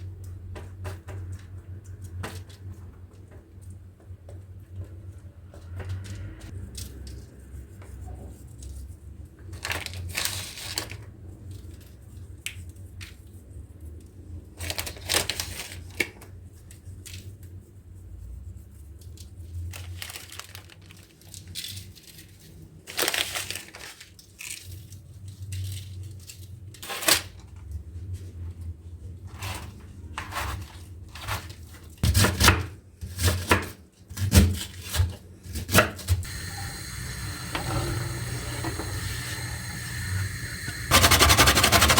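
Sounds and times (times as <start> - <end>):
low steady hum: 36.2 - 41.9
scraping: 36.2 - 41.9.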